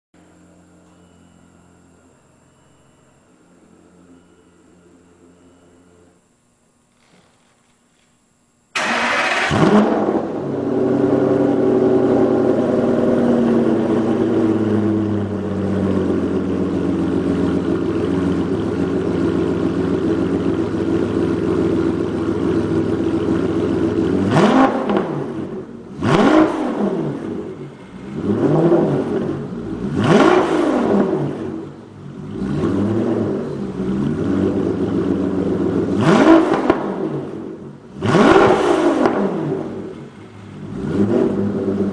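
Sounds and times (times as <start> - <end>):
car engine idling: 8.7 - 41.9
car engine starting: 8.7 - 41.9.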